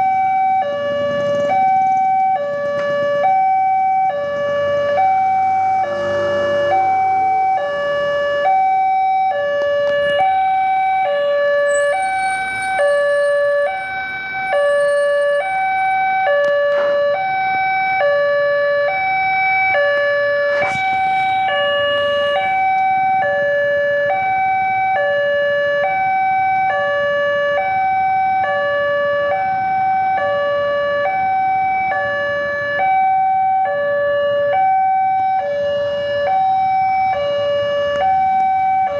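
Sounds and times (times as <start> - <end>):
two-tone hi-lo warning siren: 0.0 - 38.9.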